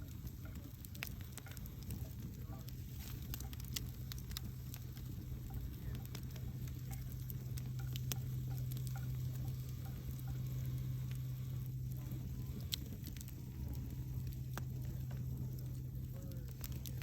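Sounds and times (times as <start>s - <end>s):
campfire crackling and popping: 0.0s - 17.0s
steady low hum: 0.0s - 17.0s.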